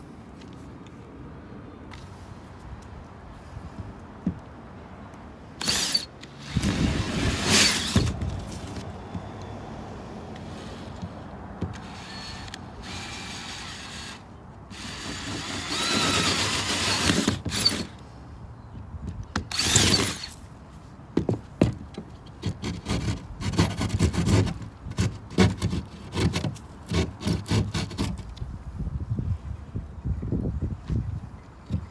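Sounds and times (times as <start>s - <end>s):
tool scraping drywall: 5.6s - 8.8s, 14.8s - 17.9s, 22.4s - 28.2s.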